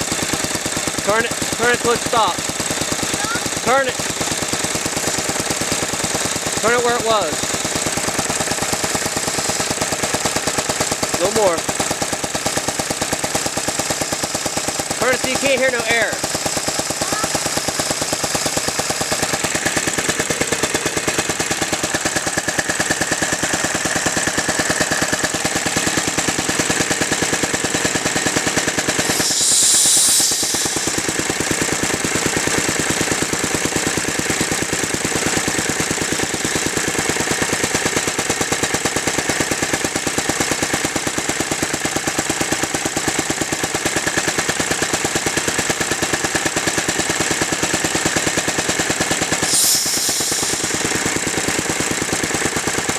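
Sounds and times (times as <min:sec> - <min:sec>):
air compressor engine firing: 0:00.0 - 0:52.9
loud hiss of escaping air: 0:28.9 - 0:32.2, 0:49.3 - 0:51.7.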